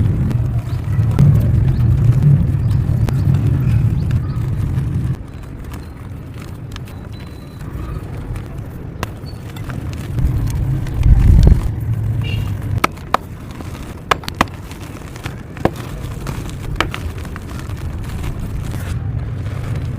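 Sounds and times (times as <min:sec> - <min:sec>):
dry lumps being crushed: 0:00.0 - 0:19.9
sharp cracks of pieces snapping: 0:12.5 - 0:19.9.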